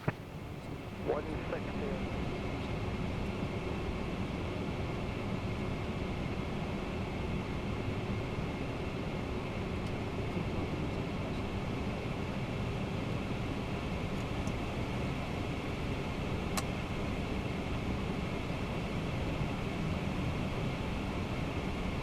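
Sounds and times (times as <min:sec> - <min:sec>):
faint high whine: 0:00.0 - 0:02.2
airflow and air-conditioning rush: 0:00.0 - 0:22.0.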